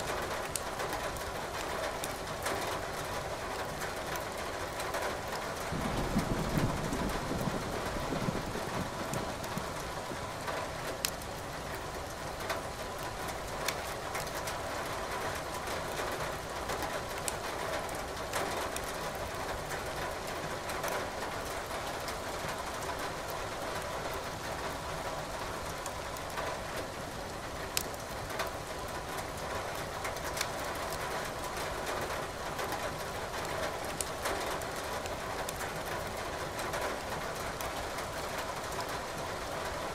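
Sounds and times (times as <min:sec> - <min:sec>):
steady rain: 0:00.0 - 0:39.9
firewood crackling in fireplace: 0:10.9 - 0:12.2, 0:27.7 - 0:28.8.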